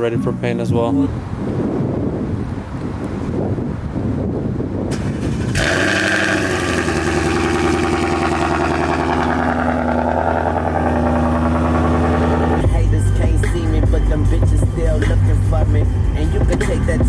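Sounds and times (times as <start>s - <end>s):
wind rumble on microphone: 0.0s - 17.0s
vehicle engine running: 4.9s - 17.0s.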